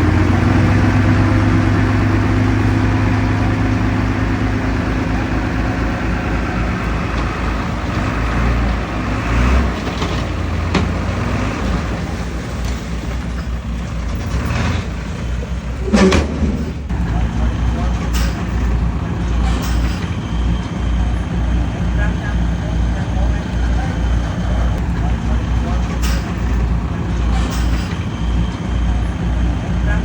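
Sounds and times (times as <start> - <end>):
heavy diesel engine running: 0.0 - 30.0
sharp knocks: 15.8 - 16.9.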